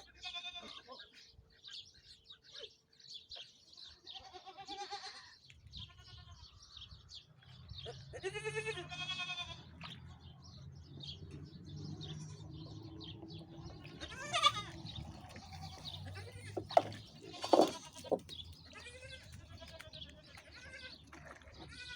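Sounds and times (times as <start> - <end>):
farmyard animals calling: 0.0 - 2.8, 3.8 - 7.0, 7.6 - 10.2, 11.9 - 21.9.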